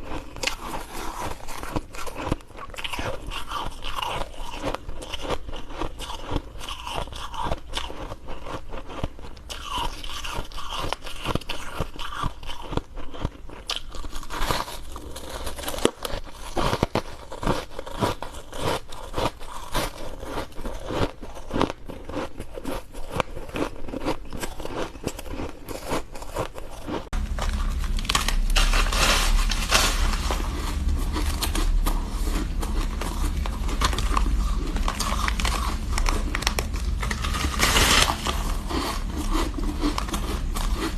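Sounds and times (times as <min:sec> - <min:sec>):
ice crunching in mouth: 0:00.0 - 0:40.9
low rumble: 0:27.1 - 0:40.9.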